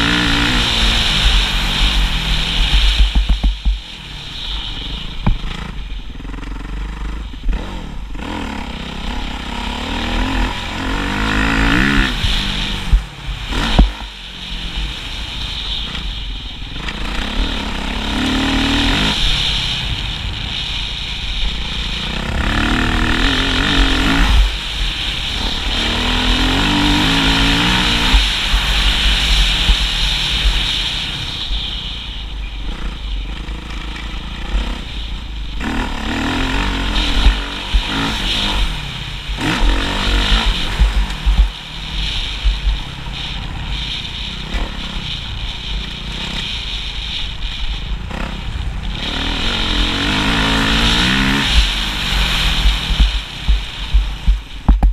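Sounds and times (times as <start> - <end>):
motocross bike engines revving: 0.0 - 54.9
sharp knock: 2.7 - 3.9, 52.8 - 54.9.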